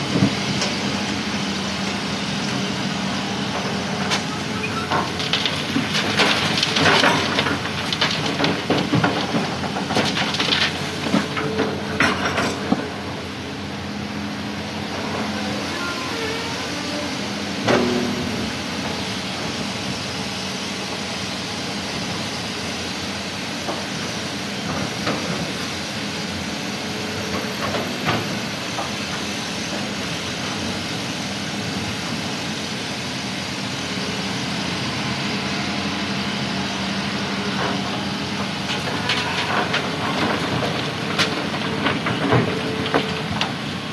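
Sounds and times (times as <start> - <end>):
heavy machine engines running: 0.0 - 43.9
stones clattering into truck bed: 4.9 - 12.9.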